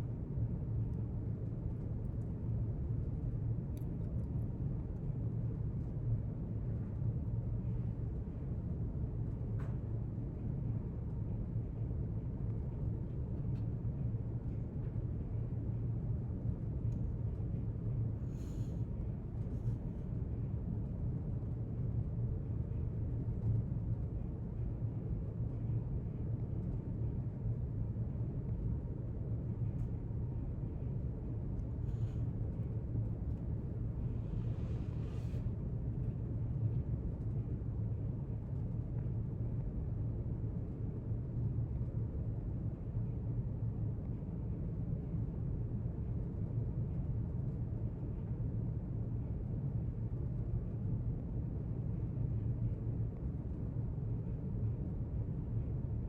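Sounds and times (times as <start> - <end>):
low room rumble: 0.0 - 56.0.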